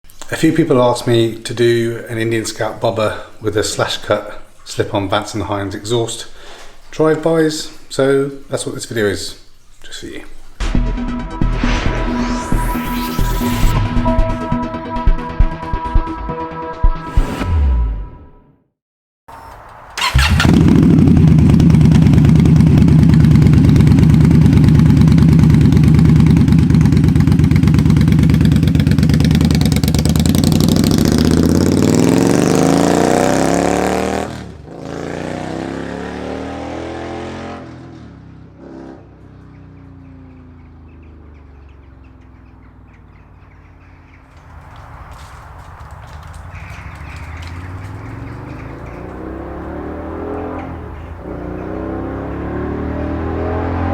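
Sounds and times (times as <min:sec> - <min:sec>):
motorcycle engine throbbing: 0:10.6 - 0:18.2, 0:20.0 - 0:33.7, 0:46.1 - 0:53.9.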